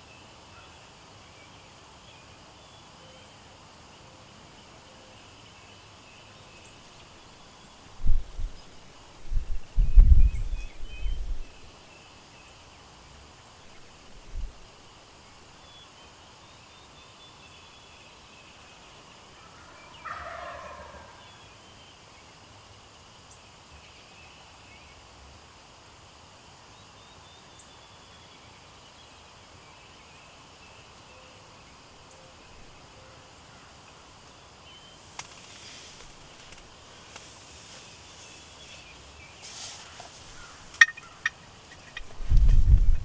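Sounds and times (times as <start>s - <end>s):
turkey gobbling: 20.0s - 21.2s.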